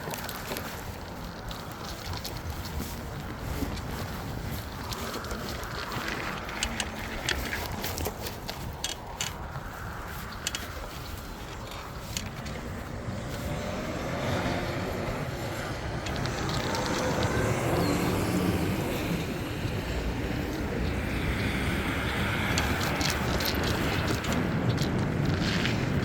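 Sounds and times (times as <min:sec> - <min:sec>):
light clicks and rattles: 0:00.0 - 0:13.6, 0:22.0 - 0:26.0
wind and road noise: 0:00.0 - 0:26.0.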